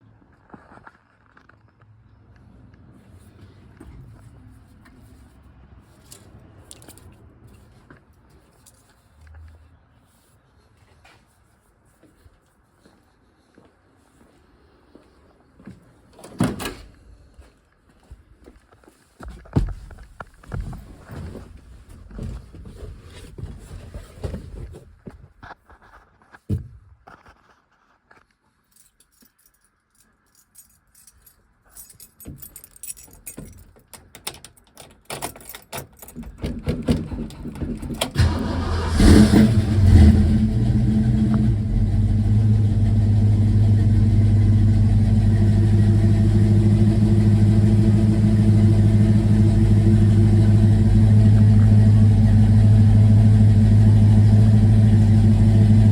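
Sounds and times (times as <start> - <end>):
light clicks and rattles: 28.2 - 38.2
car starter cranking: 36.2 - 55.9
car engine idling: 38.2 - 55.9.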